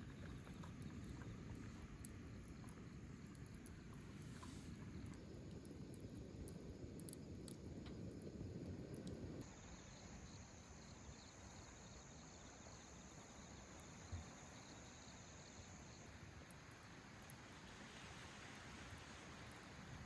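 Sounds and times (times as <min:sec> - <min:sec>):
faint low background hiss: 0:00.0 - 0:20.0
insects trilling: 0:05.0 - 0:18.1.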